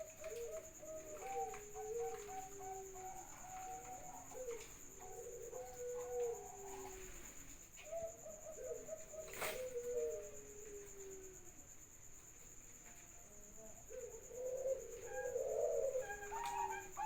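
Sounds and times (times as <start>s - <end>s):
doves cooing: 0.0s - 11.6s, 13.4s - 17.0s.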